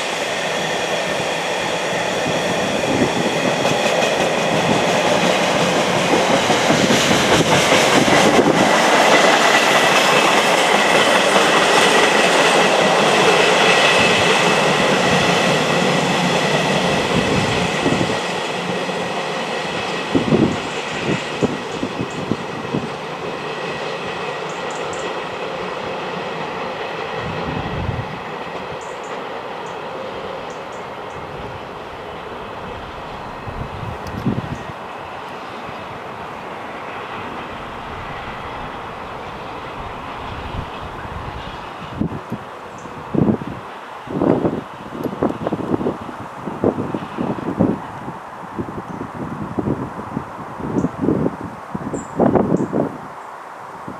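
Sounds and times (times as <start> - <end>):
wind buffeting microphone: 1.1 - 18.8, 19.7 - 23.4, 27.1 - 28.9, 31.0 - 53.2
train wheels clattering over rails: 1.3 - 27.5.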